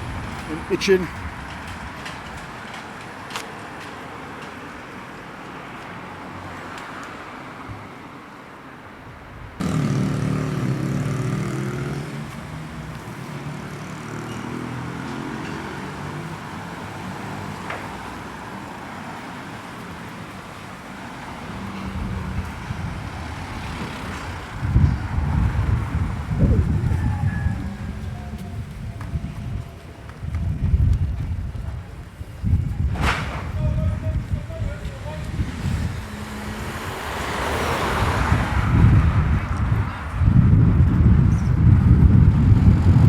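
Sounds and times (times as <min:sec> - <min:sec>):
traffic hum: 0:00.0 - 0:43.0
vehicle engine passing: 0:09.6 - 0:29.9, 0:34.0 - 0:43.0.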